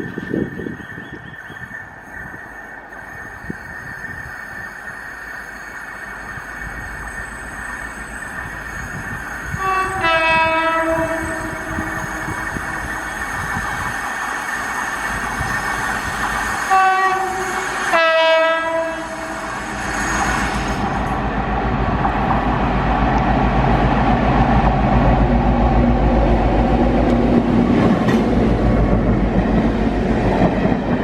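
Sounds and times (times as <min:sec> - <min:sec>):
train running rumble: 0:00.0 - 0:31.0
two-tone train horn: 0:09.5 - 0:13.4, 0:16.7 - 0:19.8.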